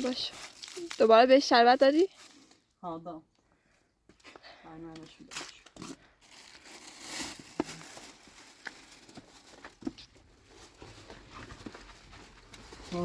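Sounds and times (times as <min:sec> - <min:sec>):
rustling: 0:05.1 - 0:13.0.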